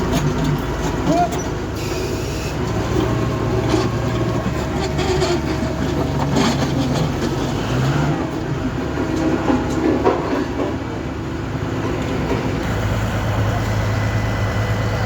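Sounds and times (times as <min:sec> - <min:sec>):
diesel engine running: 0:00.0 - 0:15.0
clattering of scraped asphalt: 0:03.6 - 0:11.0.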